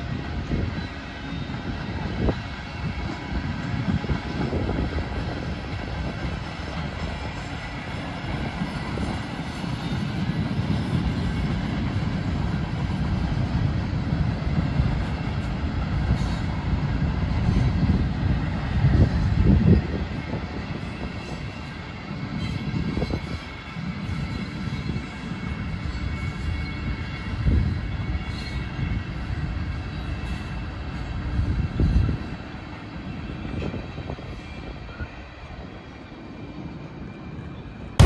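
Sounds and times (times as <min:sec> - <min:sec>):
freight train wheels rumbling on rails: 0:00.0 - 0:38.0.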